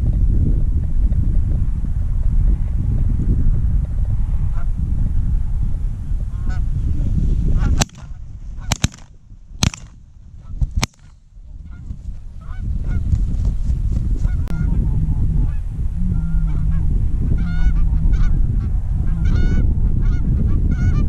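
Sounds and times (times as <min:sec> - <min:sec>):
wind rumble: 0:00.0 - 0:21.0
shotgun shots: 0:07.8 - 0:10.0, 0:10.8 - 0:11.1.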